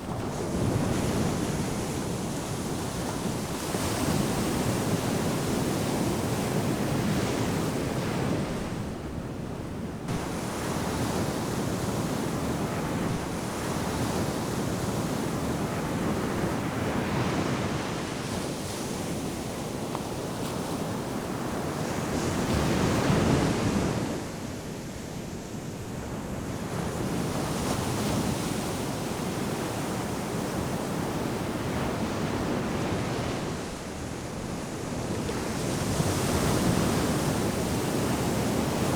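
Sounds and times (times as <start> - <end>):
ocean surf breaking on beach: 26.5 - 38.9.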